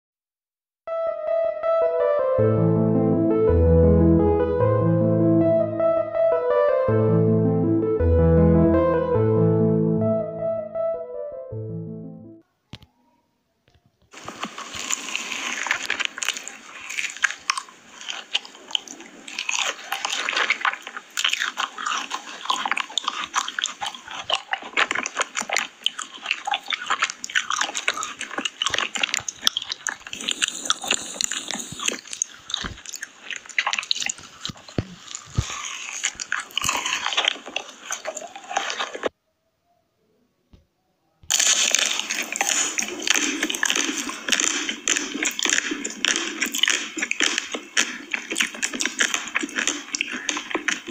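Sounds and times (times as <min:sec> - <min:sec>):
person chewing crunchy food: 0:14.1 - 0:39.1, 0:41.3 - 0:50.9.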